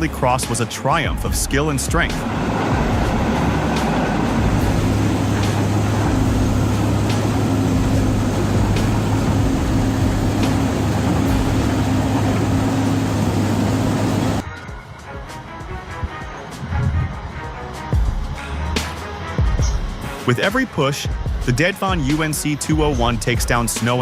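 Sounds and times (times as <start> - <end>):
heavy vehicle engine running: 0.0 - 14.5.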